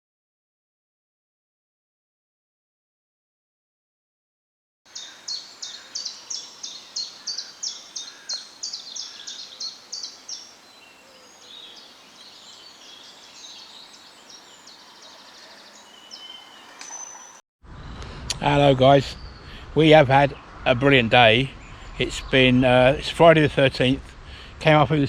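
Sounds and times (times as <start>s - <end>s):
songbird singing: 4.9s - 17.4s.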